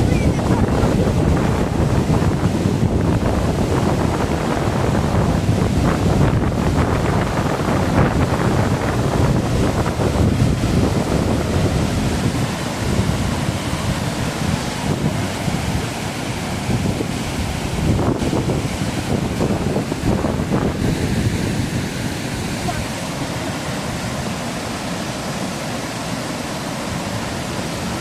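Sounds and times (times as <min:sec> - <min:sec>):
waterfall rushing: 0:00.0 - 0:28.0
wind buffeting microphone: 0:00.0 - 0:28.0.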